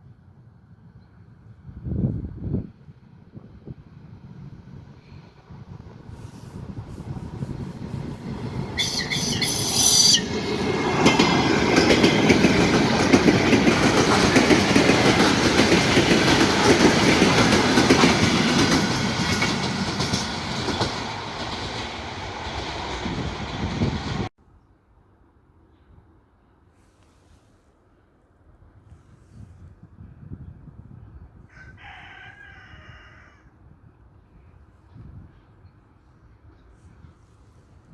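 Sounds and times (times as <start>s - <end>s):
train wheels clattering: 8.4s - 24.3s
brief shrill sound: 8.8s - 10.4s.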